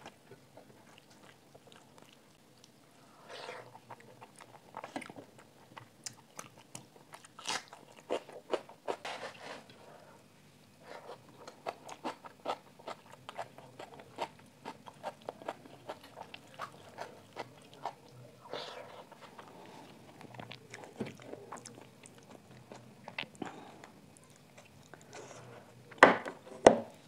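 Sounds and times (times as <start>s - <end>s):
wet chewing mouth sounds: 11.0s - 25.4s.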